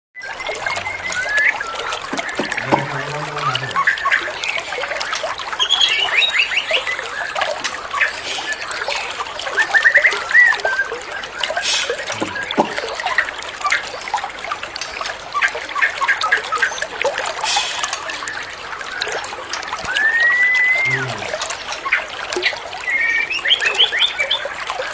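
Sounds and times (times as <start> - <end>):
running water trickling: 0.2 - 24.9.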